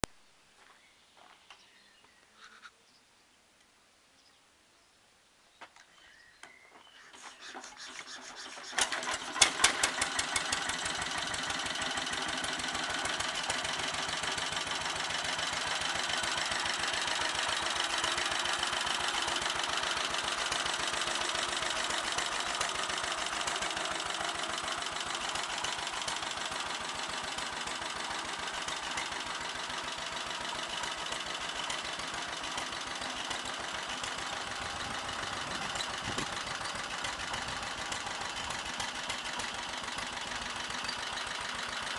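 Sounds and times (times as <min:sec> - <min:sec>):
engine starting with bangs: 0:07.2 - 0:12.2
engine running with rapid firing: 0:07.5 - 0:41.9.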